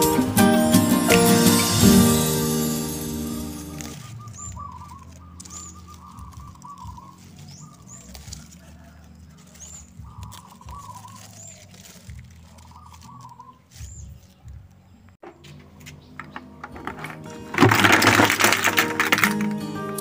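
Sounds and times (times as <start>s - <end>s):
bird cooing trill: 3.7s - 14.1s.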